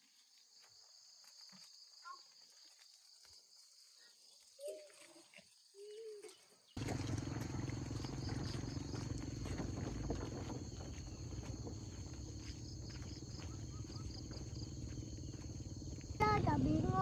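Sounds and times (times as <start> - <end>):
high insect drone: 6.8 - 17.0.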